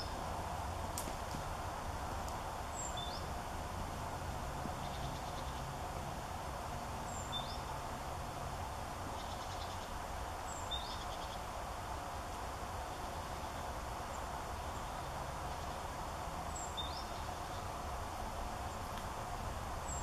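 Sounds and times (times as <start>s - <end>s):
songbird high call: 7.1s - 7.7s, 16.6s - 17.7s.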